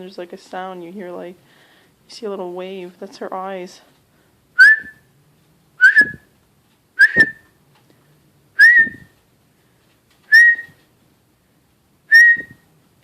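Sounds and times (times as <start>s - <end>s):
person whistling short notes: 4.6s - 5.0s, 5.8s - 6.3s, 7.0s - 7.5s, 8.6s - 9.2s, 10.3s - 10.8s, 12.1s - 12.6s.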